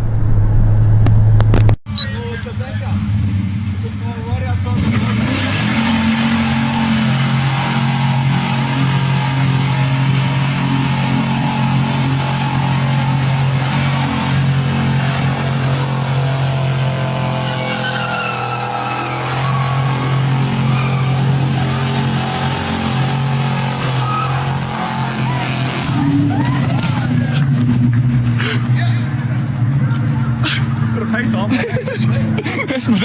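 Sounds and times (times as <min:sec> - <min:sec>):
car engine at high revs: 0:00.0 - 0:01.8, 0:04.6 - 0:33.0
tyres squealing: 0:11.1 - 0:27.6.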